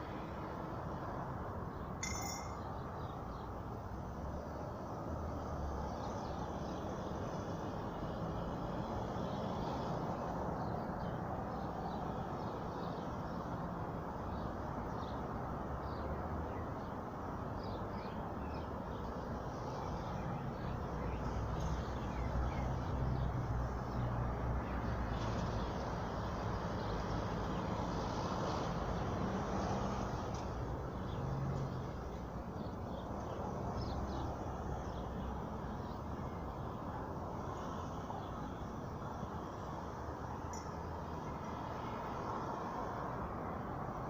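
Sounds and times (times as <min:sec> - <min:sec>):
faint bird chirps: 0:02.0 - 0:03.2.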